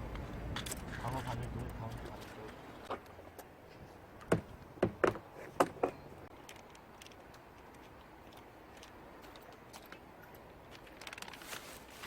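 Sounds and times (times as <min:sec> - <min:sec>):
sharp knocks: 0:04.3 - 0:06.0.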